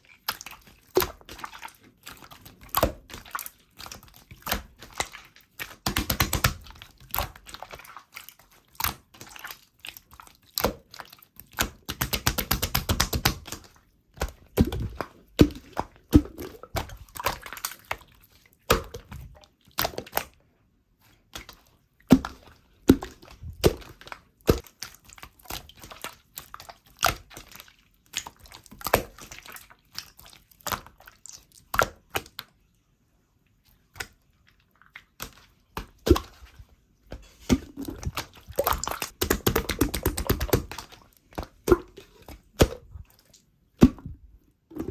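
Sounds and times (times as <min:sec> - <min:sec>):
slime clicking and popping: 0:37.5 - 0:41.9.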